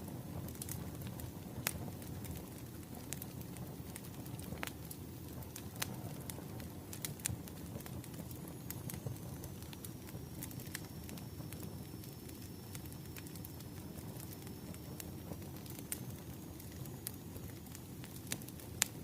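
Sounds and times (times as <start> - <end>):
bonfire crackling and popping: 0.0 - 19.0
low rumble of burning: 0.0 - 19.0.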